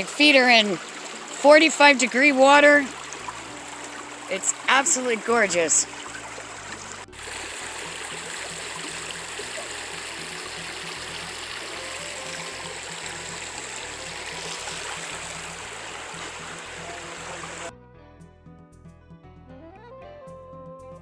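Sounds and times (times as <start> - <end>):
stream water rushing: 0.0 - 17.7
quiet background music: 1.5 - 21.0.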